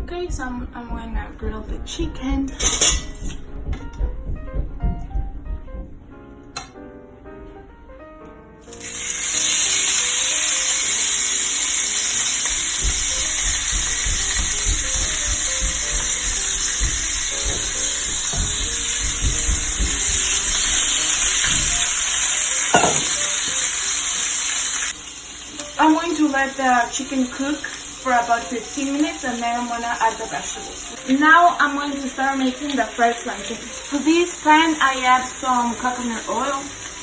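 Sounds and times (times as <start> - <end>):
sharp knock: 2.9 - 6.0, 12.8 - 21.8
low bumps of pan: 3.3 - 6.1
chicken sizzling in oil: 8.6 - 37.0.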